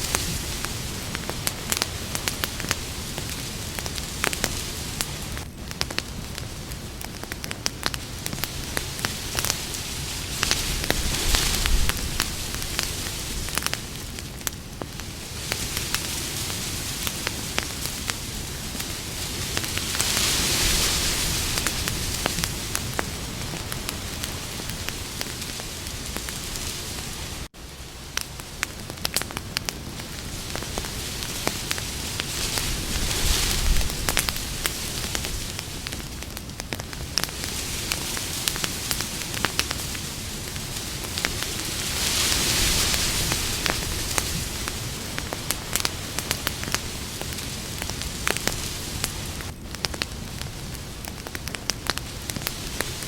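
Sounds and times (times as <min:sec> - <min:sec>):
campfire crackling and popping: 0:00.0 - 0:53.0.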